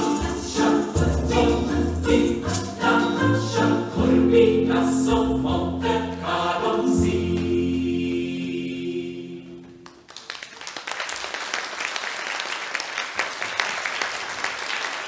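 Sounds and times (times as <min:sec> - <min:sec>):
choir holding a chord: 0:00.0 - 0:09.7
audience applause: 0:09.8 - 0:15.0.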